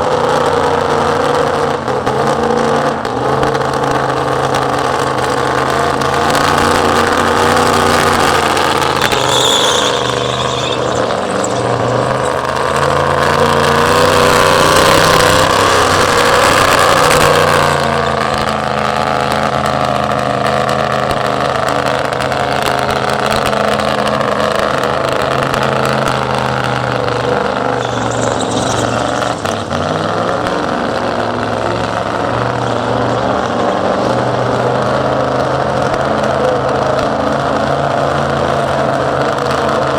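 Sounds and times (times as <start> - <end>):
car engine at high revs: 0.0 - 39.9
tyres spinning: 4.6 - 18.2, 24.9 - 31.6.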